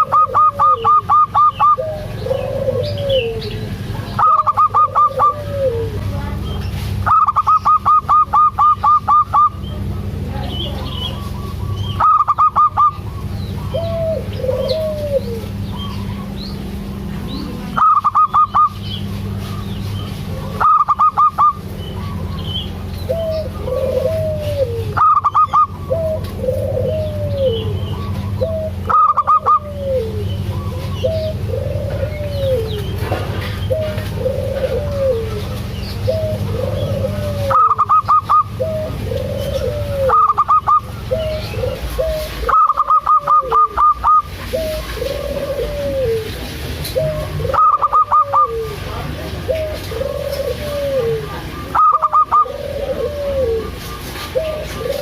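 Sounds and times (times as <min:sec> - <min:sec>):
dove cooing: 0:00.0 - 0:55.0
small birds chirping: 0:00.0 - 0:55.0
steady low hum: 0:00.0 - 0:55.0
rapid repeated high bird notes: 0:07.0 - 0:09.7, 0:11.0 - 0:14.0, 0:17.7 - 0:19.0, 0:19.6 - 0:22.7, 0:25.0 - 0:25.9.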